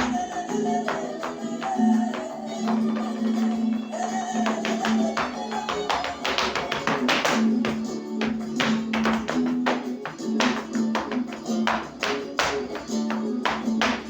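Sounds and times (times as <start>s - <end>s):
flamenco music: 0.0s - 14.0s.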